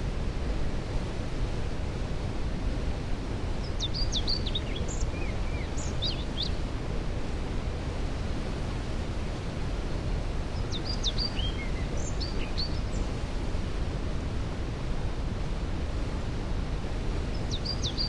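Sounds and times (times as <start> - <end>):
songbird singing: 3.6 - 6.6, 10.6 - 13.1, 17.3 - 18.0.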